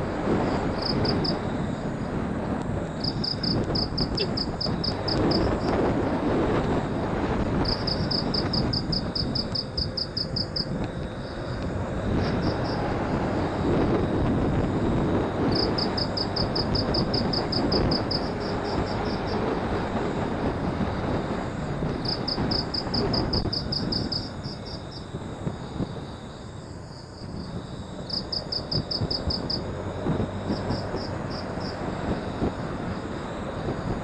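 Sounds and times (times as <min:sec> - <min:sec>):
wind rushing over microphone: 0:00.0 - 0:34.0.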